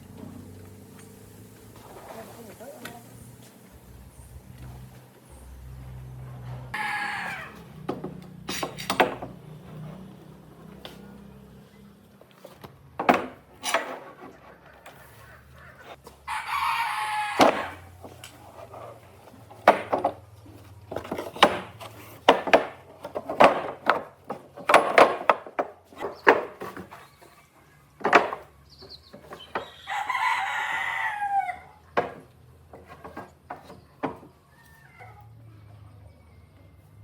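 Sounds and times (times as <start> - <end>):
rooster crowing: 6.7 - 7.8, 16.3 - 17.9, 29.6 - 31.8.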